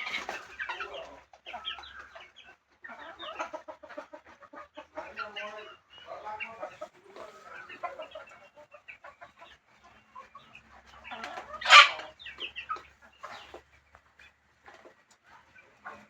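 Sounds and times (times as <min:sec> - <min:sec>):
chicken squawk: 0:00.0 - 0:09.4, 0:11.0 - 0:13.5
chickens clucking: 0:00.0 - 0:16.0
chickens pecking taps: 0:00.0 - 0:16.0.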